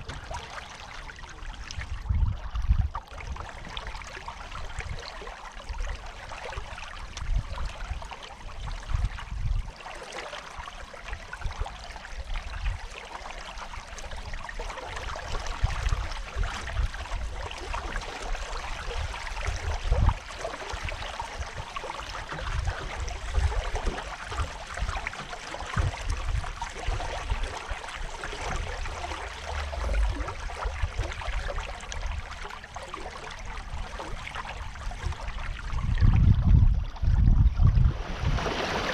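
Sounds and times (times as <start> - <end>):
water splashing along a hull: 0.0 - 38.9
low rumbles: 28.6 - 32.4.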